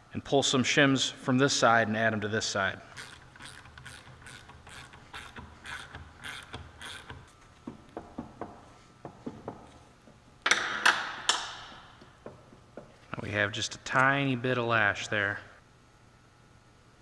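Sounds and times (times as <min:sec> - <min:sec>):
ratchet wrench clicking: 0:02.9 - 0:07.3.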